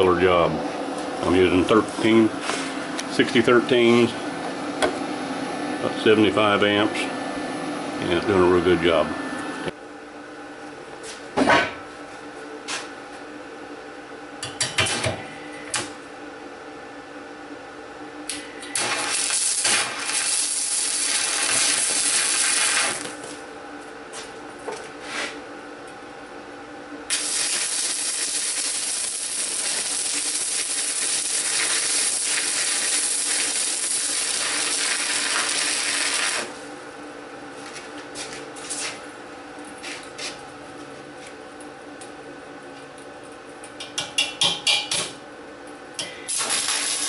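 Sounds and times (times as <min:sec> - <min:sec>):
welding arc sizzling: 0:00.0 - 0:09.8, 0:18.3 - 0:23.4, 0:27.1 - 0:36.8, 0:46.2 - 0:47.0
steady hum: 0:00.0 - 0:47.0.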